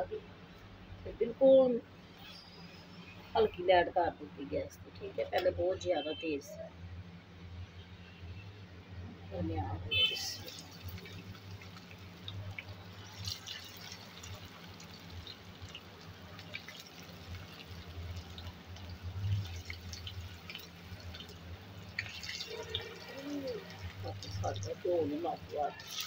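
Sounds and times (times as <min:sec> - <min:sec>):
food sizzling in hot oil: 0:10.0 - 0:26.0.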